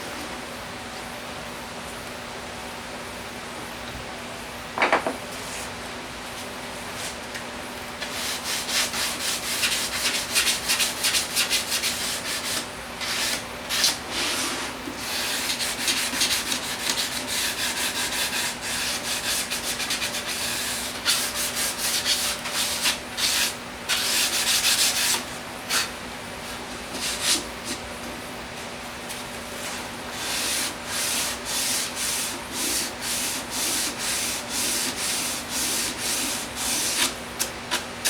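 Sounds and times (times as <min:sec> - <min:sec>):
sandpaper rubbing on wood: 0:08.1 - 0:25.2, 0:30.2 - 0:37.1.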